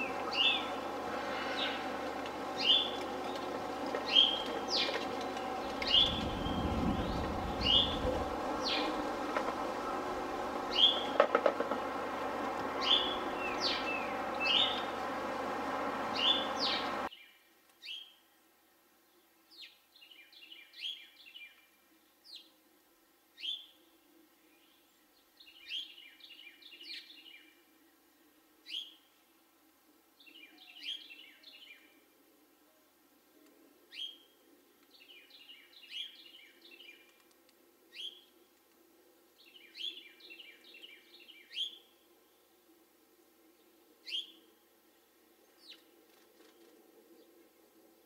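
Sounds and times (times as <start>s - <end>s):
birds chirping: 0.0s - 17.1s
steady background noise: 0.0s - 17.1s.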